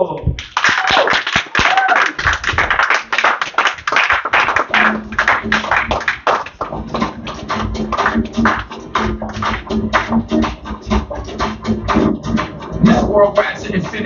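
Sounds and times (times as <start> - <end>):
audience applauding: 0.4 - 13.0
dance track with steady beat: 3.8 - 14.0.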